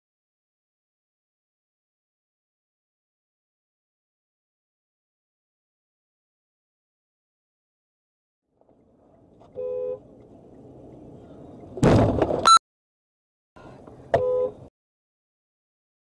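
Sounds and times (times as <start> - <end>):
road noise: 8.5 - 12.6, 13.6 - 14.7
car horn honking: 9.6 - 10.0, 14.2 - 14.7.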